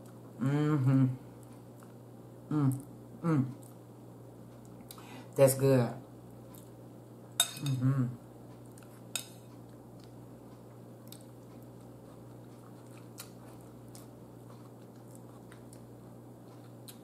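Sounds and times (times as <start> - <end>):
steady low hum: 0.0 - 17.0
faint chewing: 1.4 - 2.0, 3.5 - 3.8, 8.4 - 17.0.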